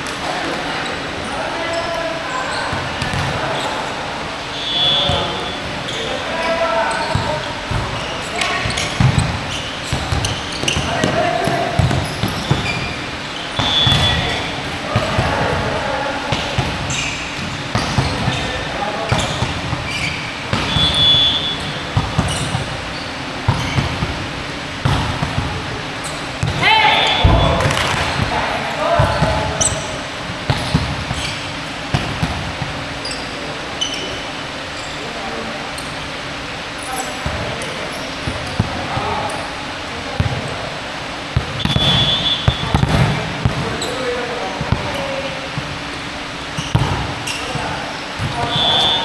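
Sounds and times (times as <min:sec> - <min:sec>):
hall din and voices: 0:00.0 - 0:49.0
basketball bouncing on court floor: 0:02.7 - 0:03.4, 0:07.0 - 0:33.2, 0:37.2 - 0:39.4, 0:40.1 - 0:40.7, 0:41.3 - 0:49.0.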